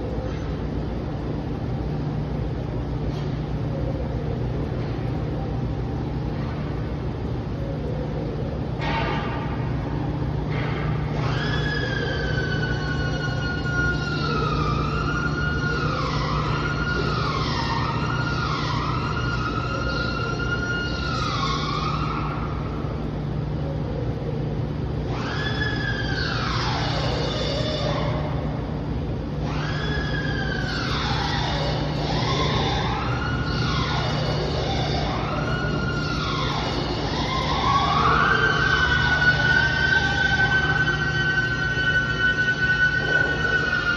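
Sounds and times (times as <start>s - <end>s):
steady low hum: 0.0s - 43.9s
siren wailing: 10.3s - 23.1s, 25.0s - 28.8s, 29.4s - 43.9s.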